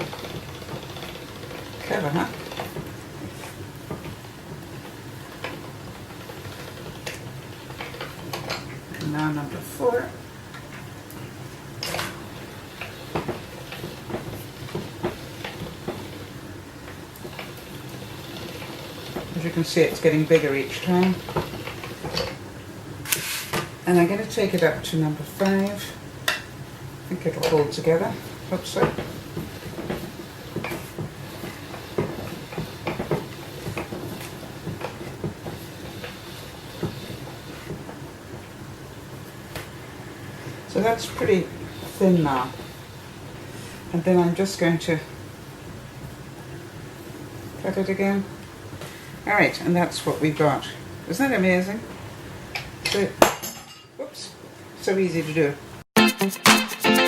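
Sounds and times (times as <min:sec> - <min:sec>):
crank and roller gears clicking: 0:00.0 - 0:10.9, 0:11.7 - 0:22.4, 0:27.1 - 0:38.6, 0:39.2 - 0:45.1
pasta machine rumbling: 0:00.0 - 0:53.2
pasta machine rasp: 0:17.2 - 0:22.4, 0:41.3 - 0:43.9.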